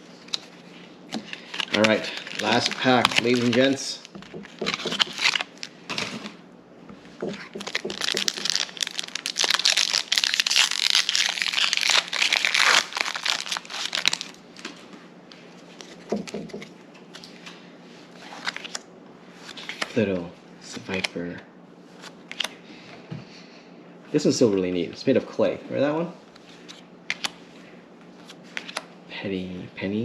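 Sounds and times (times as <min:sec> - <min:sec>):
foil wrapper tearing and crinkling: 0:01.4 - 0:05.7, 0:07.6 - 0:14.4.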